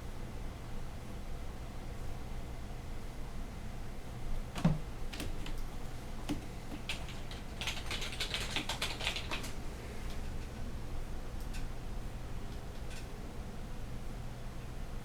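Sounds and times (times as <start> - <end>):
cats scratching and clicking: 4.6 - 10.5.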